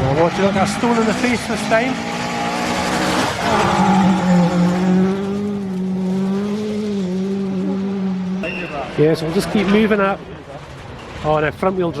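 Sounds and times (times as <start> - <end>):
rally car engine at high revs: 0.0 - 8.4.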